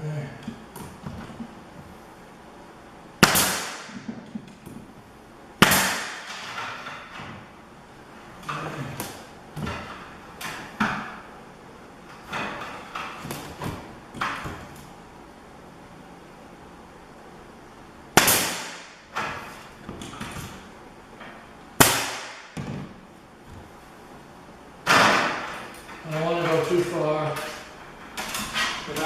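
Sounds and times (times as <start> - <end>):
nail gun shots: 3.2 - 4.1, 5.6 - 6.7, 18.2 - 19.3, 21.8 - 22.6.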